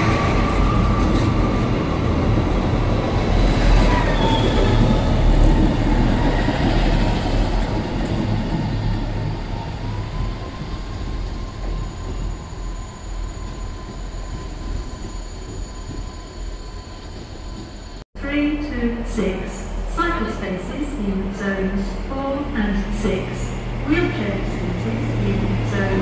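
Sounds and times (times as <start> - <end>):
train rumbling by: 0.0 - 18.0, 18.6 - 26.0.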